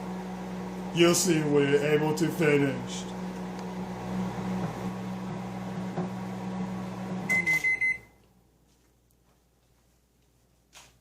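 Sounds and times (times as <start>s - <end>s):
microwave oven humming: 0.0s - 8.4s
microwave beeping: 3.7s - 8.2s.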